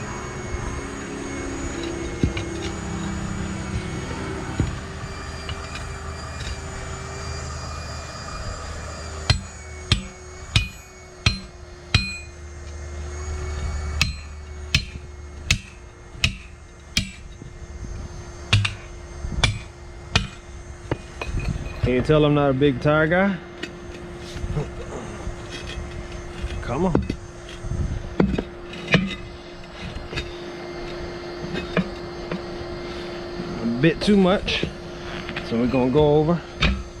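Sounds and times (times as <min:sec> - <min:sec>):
steady low rumble: 0:00.0 - 0:37.0
hammer striking steel tools: 0:09.3 - 0:12.4, 0:14.0 - 0:17.4, 0:18.5 - 0:22.0, 0:35.7 - 0:36.9.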